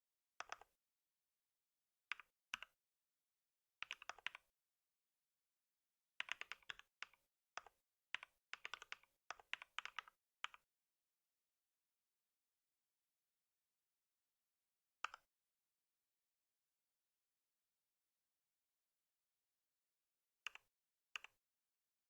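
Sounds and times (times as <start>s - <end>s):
typing on a computer keyboard: 2.1s - 2.7s, 3.8s - 4.4s, 6.2s - 10.6s.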